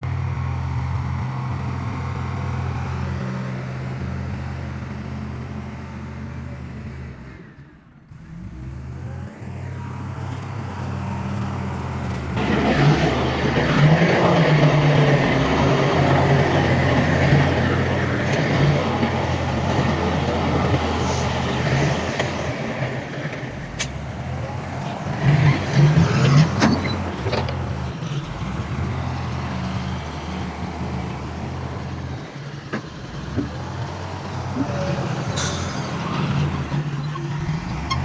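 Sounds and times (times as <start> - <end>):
heavy diesel engine running: 0.0 - 38.0
rough clattering noise: 10.3 - 38.0.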